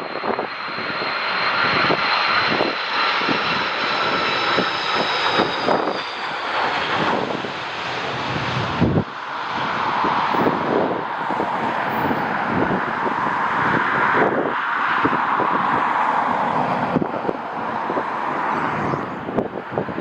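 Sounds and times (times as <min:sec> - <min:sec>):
jet engine rushing: 0:00.0 - 0:20.0
wind buffeting microphone: 0:00.0 - 0:20.0.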